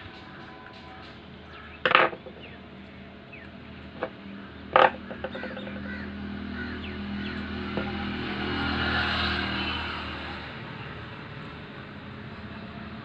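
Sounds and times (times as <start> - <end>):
loud bird calls: 0.0 - 8.7.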